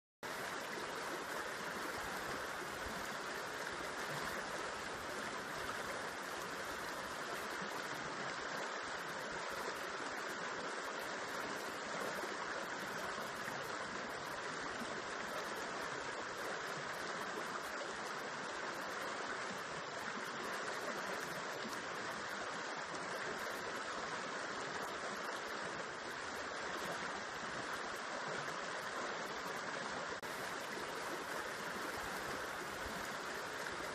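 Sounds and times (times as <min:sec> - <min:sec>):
river water flowing over rocks: 0:00.2 - 0:33.9.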